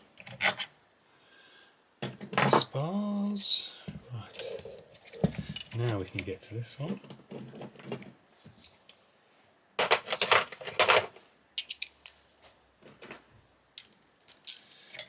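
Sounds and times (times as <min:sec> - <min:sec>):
metal tools clinking on workbench: 0:09.8 - 0:12.2.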